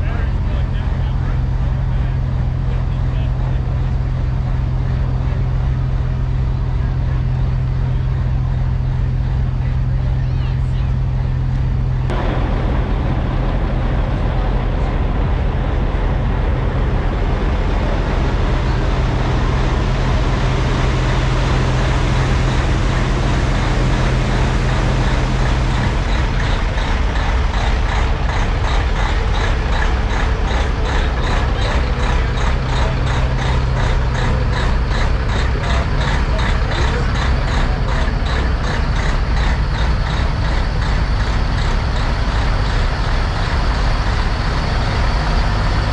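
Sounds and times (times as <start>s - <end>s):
truck engines idling: 0.0s - 45.9s
fast regular ticking: 12.0s - 45.9s.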